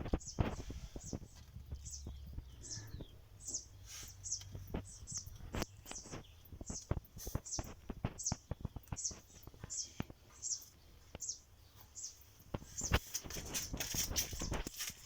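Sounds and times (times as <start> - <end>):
small bird chirping: 0.0 - 15.0.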